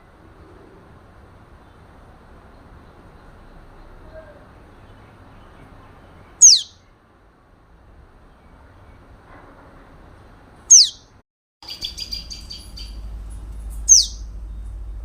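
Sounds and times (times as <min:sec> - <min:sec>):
rapid bird chirps: 0:04.7 - 0:06.9, 0:10.7 - 0:13.1, 0:13.8 - 0:14.7
bird whistle sweeping down: 0:06.4 - 0:06.8, 0:10.7 - 0:11.0, 0:13.9 - 0:14.2.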